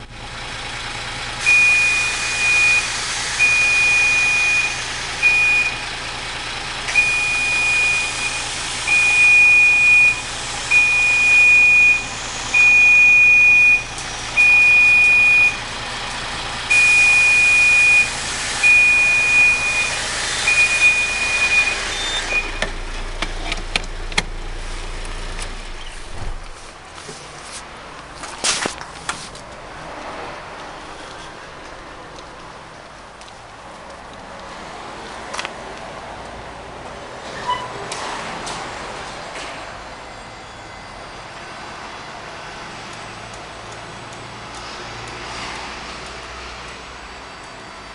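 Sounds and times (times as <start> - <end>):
low engine hum: 0.0 - 40.7
truck warning buzzer beeping: 1.4 - 5.9, 6.9 - 15.7, 16.7 - 22.9.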